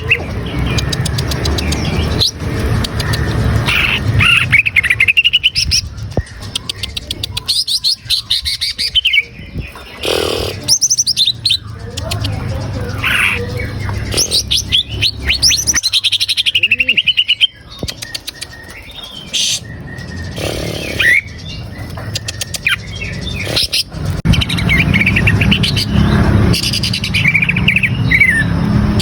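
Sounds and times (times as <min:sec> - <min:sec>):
bird singing whistled notes: 0:00.0 - 0:23.6
bird clicks and short calls: 0:17.2 - 0:21.2.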